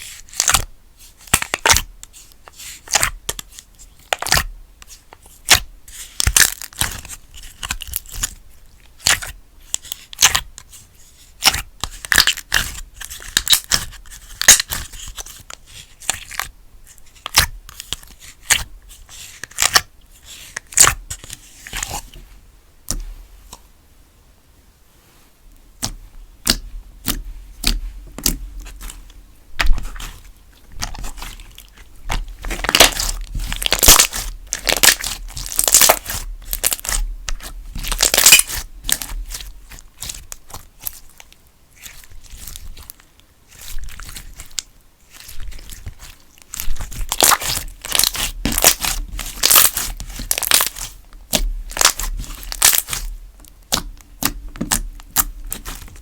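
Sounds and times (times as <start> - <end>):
slime squishing and popping: 19.5 - 19.9, 25.8 - 29.0, 29.6 - 30.2, 30.8 - 41.2, 41.8 - 56.0.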